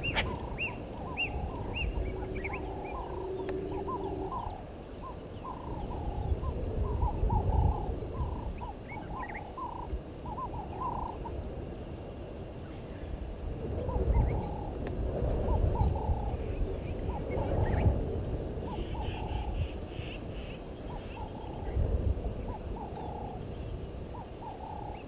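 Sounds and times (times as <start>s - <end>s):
birds chirping and chattering: 0.0s - 13.2s, 18.6s - 21.8s.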